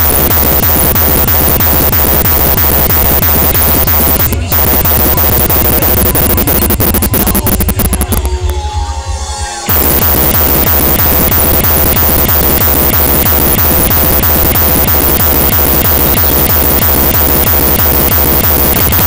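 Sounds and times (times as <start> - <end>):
distorted techno dance music: 0.0 - 8.3.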